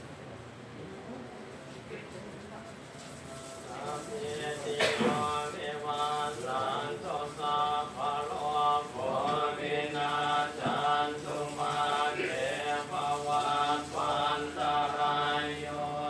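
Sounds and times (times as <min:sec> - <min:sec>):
monks chanting: 0:03.7 - 0:16.0.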